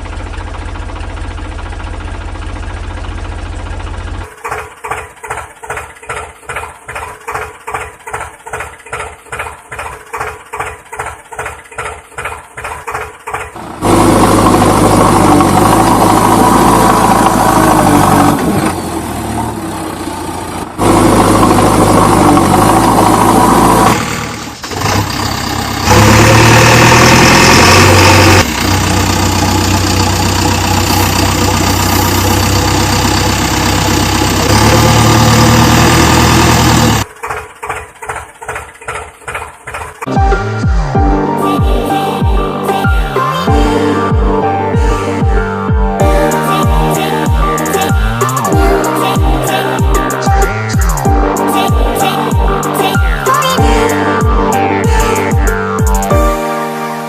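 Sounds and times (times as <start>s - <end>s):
loud steady engine run: 0.0s - 41.0s
engine chugging: 0.0s - 56.4s.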